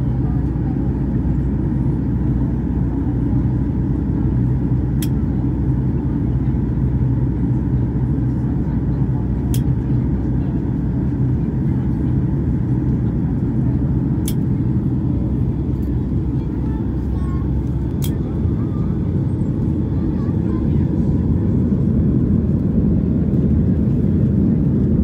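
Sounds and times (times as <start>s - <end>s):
airliner cabin rumble: 0.0s - 25.0s.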